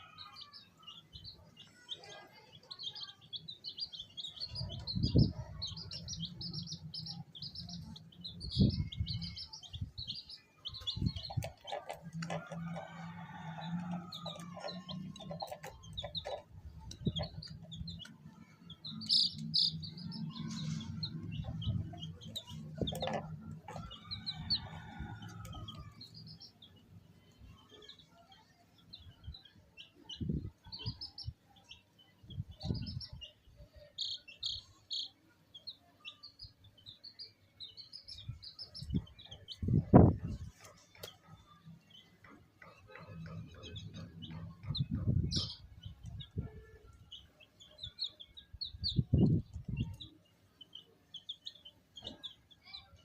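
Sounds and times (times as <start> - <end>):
chicks peeping: 0.0 - 53.0.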